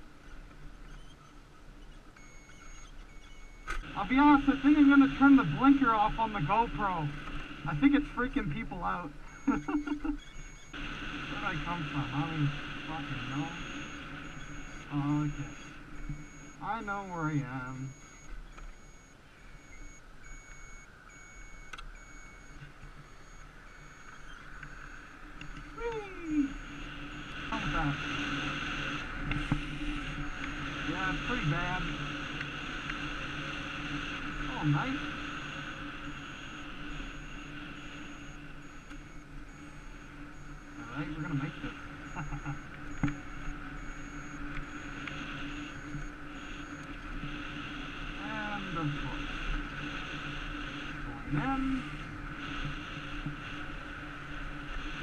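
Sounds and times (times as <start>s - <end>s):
steady high hum: 0.0s - 55.0s
turn-signal beeper beeping: 2.2s - 28.0s, 30.1s - 32.1s, 34.2s - 46.9s
high faint tone: 2.2s - 49.8s
wind and road noise: 18.2s - 55.0s.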